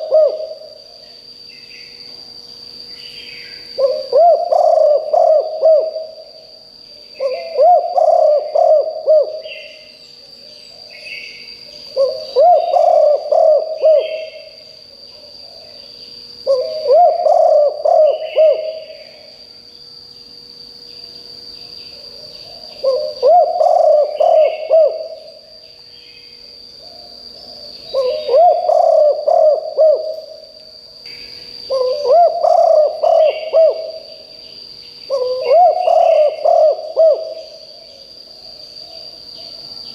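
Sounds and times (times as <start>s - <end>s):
dove cooing: 0.0s - 1.0s, 3.7s - 6.3s, 7.2s - 9.9s, 11.8s - 14.6s, 16.4s - 19.3s, 22.0s - 25.4s, 26.8s - 30.4s, 31.7s - 34.2s, 35.1s - 37.7s
faint bird chirps: 0.0s - 30.5s
steady high-pitched whine: 0.0s - 39.9s.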